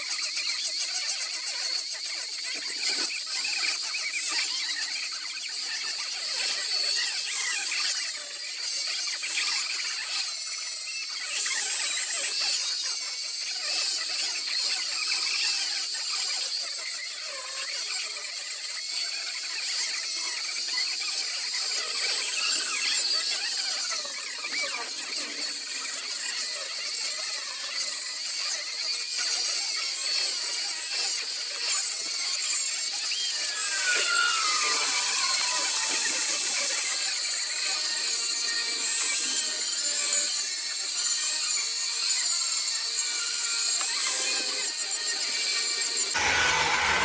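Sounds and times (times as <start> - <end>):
rotary tool grinding wood: 31.9 - 38.5, 45.9 - 47.0.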